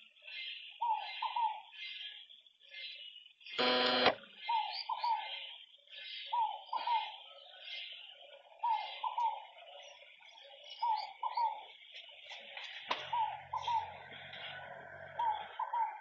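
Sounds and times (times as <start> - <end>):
steady high chirring: 3.6 - 4.1
harsh buzzing call: 3.6 - 4.2.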